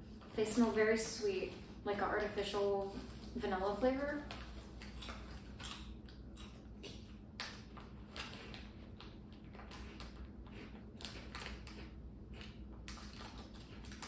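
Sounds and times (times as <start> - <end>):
snacks being chewed crunchily: 4.3 - 14.0.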